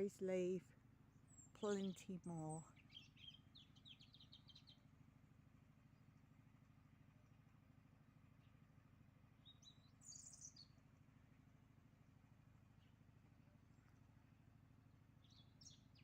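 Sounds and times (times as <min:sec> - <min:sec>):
steady low hum: 0:00.0 - 0:16.0
small bird chirping: 0:01.3 - 0:04.8, 0:09.4 - 0:10.8, 0:15.2 - 0:16.0.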